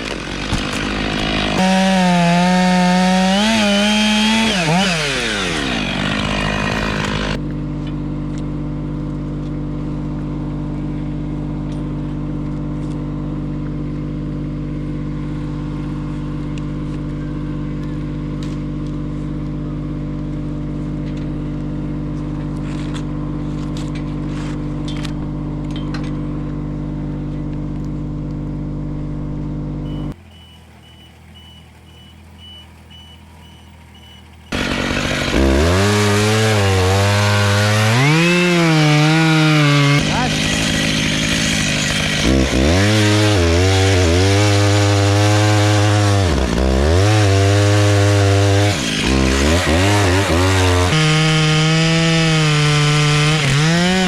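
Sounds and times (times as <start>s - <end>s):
chainsaw revving: 0.0s - 7.4s, 34.4s - 54.0s
steady engine drone: 0.0s - 35.9s
faint high beep: 29.8s - 34.3s.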